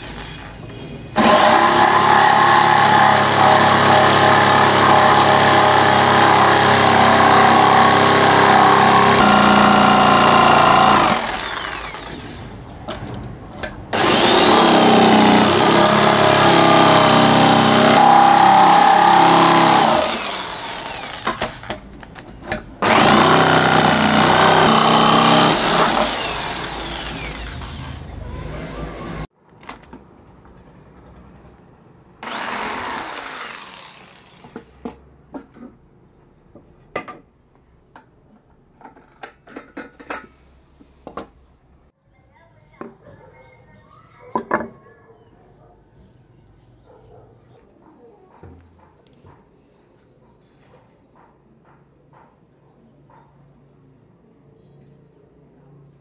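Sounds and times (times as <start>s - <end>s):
power tool working wood: 1.2s - 12.4s, 14.0s - 21.8s, 22.8s - 29.2s, 32.2s - 34.6s.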